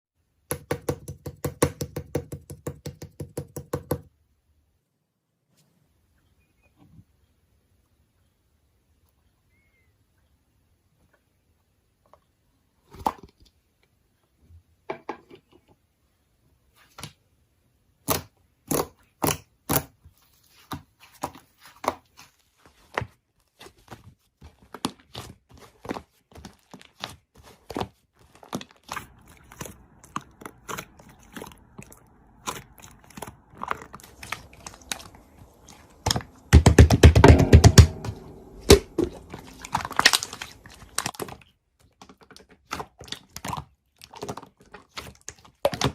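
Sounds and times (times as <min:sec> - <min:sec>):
slime squished sticky pops: 0:38.7 - 0:41.4.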